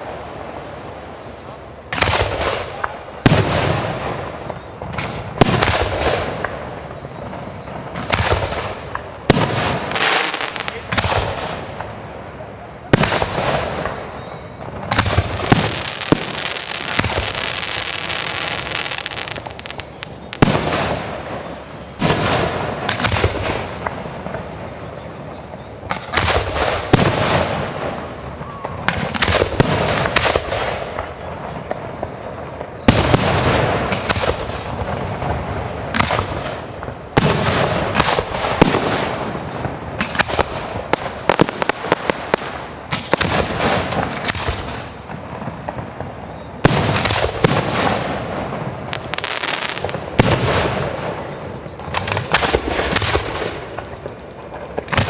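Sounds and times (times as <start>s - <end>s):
fireworks crackling: 0.0s - 55.0s
firework shells bursting: 32.0s - 55.0s.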